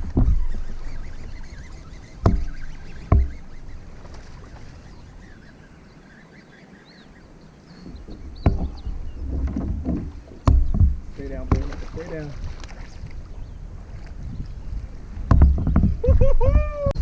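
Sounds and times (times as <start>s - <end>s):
faint bird chirps: 0.2s - 9.3s
hollow knocks on plastic hull: 2.2s - 3.4s, 8.4s - 8.8s, 9.4s - 12.0s, 15.2s - 16.0s.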